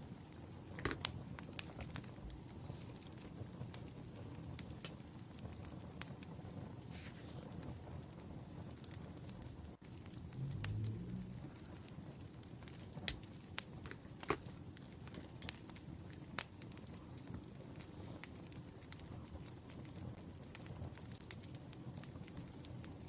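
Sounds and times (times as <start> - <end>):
wood fire crackling: 0.0 - 23.0
low hum: 10.2 - 11.9.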